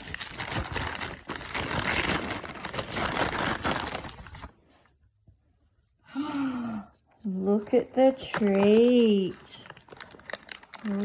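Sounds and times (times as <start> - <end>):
plastic packaging crinkling: 0.0 - 4.6, 7.3 - 11.0.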